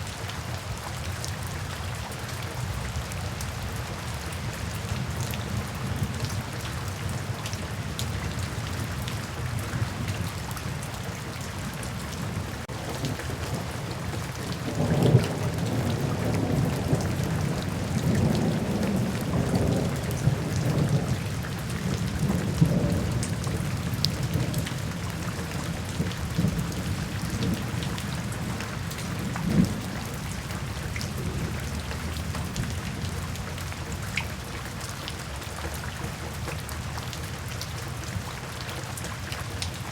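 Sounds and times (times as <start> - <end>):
steady rain falling: 0.0 - 39.9
thunder rumbling: 12.2 - 33.9.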